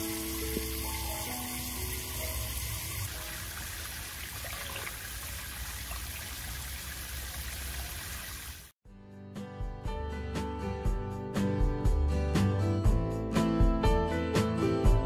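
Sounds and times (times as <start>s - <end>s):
soft background music: 0.0s - 3.6s
water splashing hiss: 0.0s - 8.7s.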